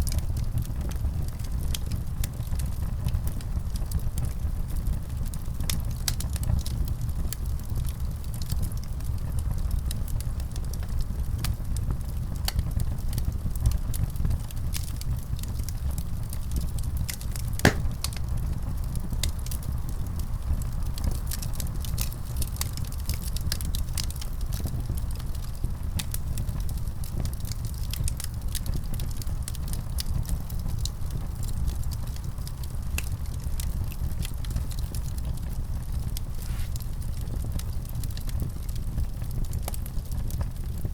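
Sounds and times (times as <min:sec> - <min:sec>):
fire crackles and pops: 0:00.0 - 0:40.9
fire rumbling: 0:00.0 - 0:40.9.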